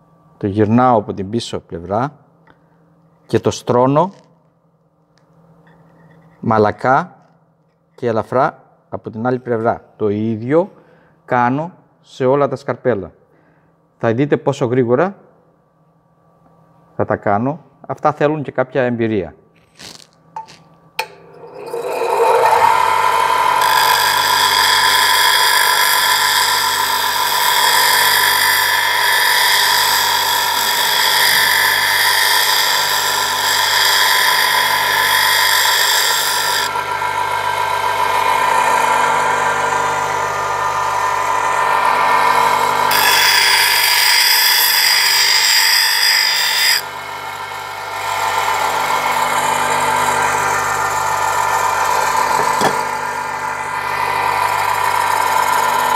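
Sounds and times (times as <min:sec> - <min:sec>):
electric grinding wheel whine: 0:21.0 - 0:55.9
chisel grinding on wheel: 0:21.3 - 0:40.1, 0:41.3 - 0:55.9.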